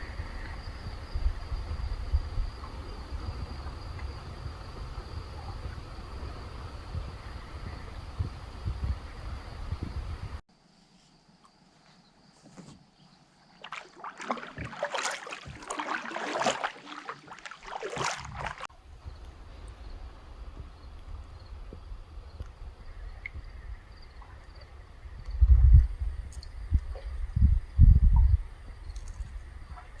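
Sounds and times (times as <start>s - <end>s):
kayak paddle splashing: 0.0s - 10.2s, 13.6s - 22.0s
wind rumble on microphone: 0.0s - 10.4s, 18.2s - 30.0s
faint outdoor ambience: 0.0s - 17.1s.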